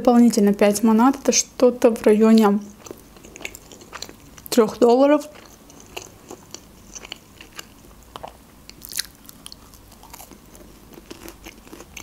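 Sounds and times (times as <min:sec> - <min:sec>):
person chewing pastry: 0:02.7 - 0:04.6, 0:05.2 - 0:12.0
small crunches: 0:05.4 - 0:12.0.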